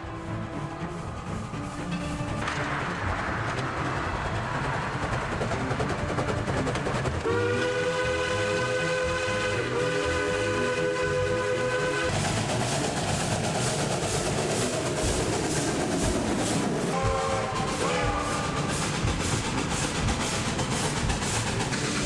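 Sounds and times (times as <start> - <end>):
rumble of moving train: 0.0 - 22.0
steam exhaust chuffing: 0.0 - 22.0
steam locomotive whistle: 7.2 - 12.4, 16.9 - 20.5.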